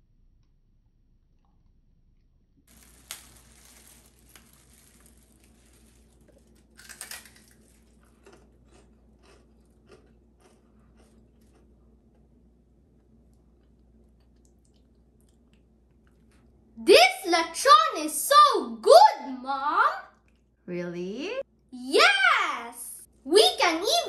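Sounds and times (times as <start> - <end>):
crunchy biting and chewing: 3.0 - 12.3.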